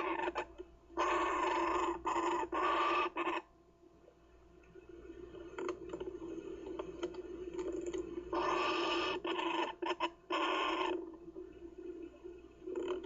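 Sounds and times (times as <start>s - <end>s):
bird chick squawking: 1.0s - 3.4s, 8.4s - 11.0s.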